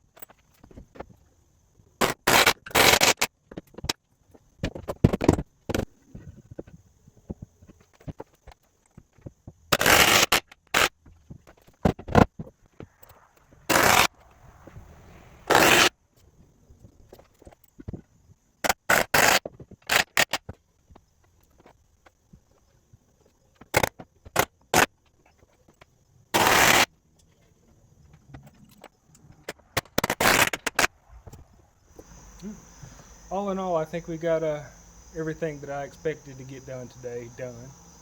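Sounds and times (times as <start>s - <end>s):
wood scraping: 9.0s - 15.9s.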